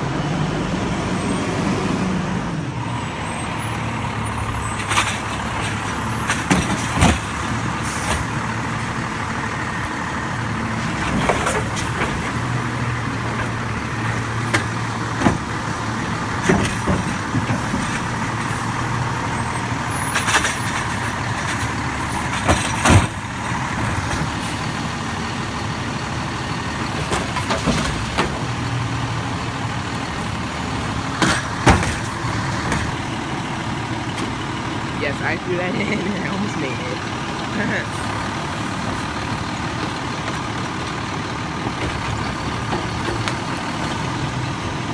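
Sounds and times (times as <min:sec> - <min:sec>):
garbage truck engine running: 0:00.0 - 0:44.9
sharp clanks and knocks: 0:20.1 - 0:23.2, 0:31.2 - 0:33.0.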